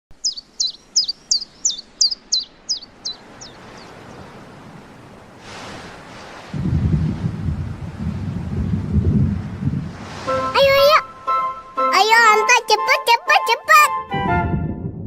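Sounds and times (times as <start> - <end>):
bird chirping: 0.1 - 4.3
loud low rumble: 14.2 - 15.0.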